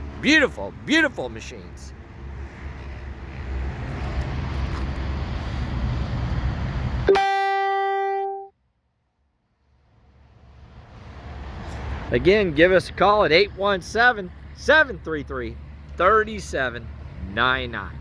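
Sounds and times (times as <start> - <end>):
plucked guitar note: 7.1 - 8.5
low engine rumble: 9.7 - 18.0.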